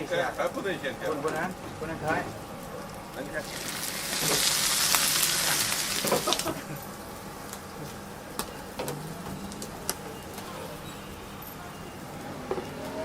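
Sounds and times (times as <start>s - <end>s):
loud even hiss: 3.4s - 6.4s.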